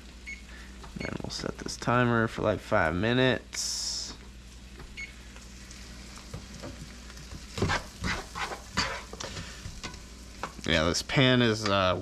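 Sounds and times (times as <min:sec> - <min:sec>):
onions sizzling in a frying pan: 0:00.0 - 0:12.0
stirring scrapes and knocks: 0:06.2 - 0:10.6.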